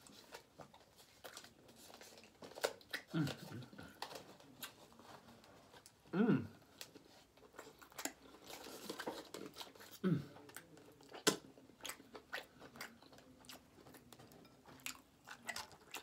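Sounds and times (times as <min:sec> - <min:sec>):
close chewing with mouth smacks: 0:00.0 - 0:06.0, 0:06.6 - 0:16.0.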